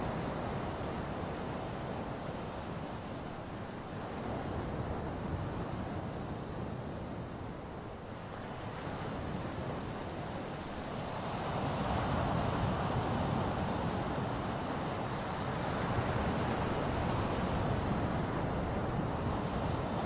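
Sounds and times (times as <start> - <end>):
ocean waves washing on shore: 0.0 - 20.0.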